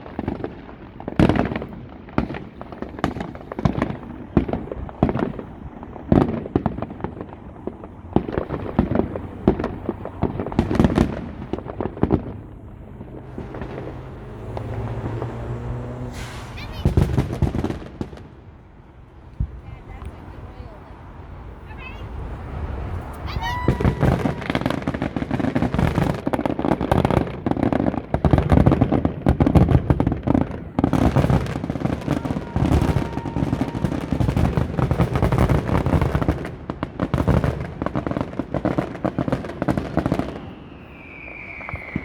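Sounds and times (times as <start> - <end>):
fireworks booms and crackling: 0.0 - 42.0
long falling whistle: 23.3 - 24.7, 32.1 - 34.1, 40.3 - 42.0.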